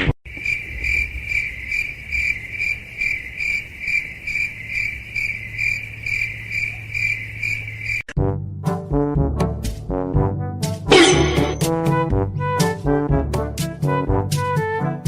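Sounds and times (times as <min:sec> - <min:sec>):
cricket chirping: 0:00.3 - 0:08.1.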